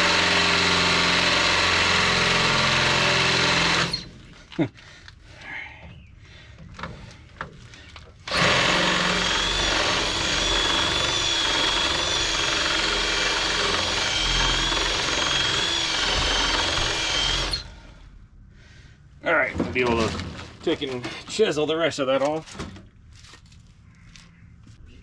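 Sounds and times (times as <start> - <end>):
electric drill whining: 0.0 - 4.2, 8.3 - 17.8.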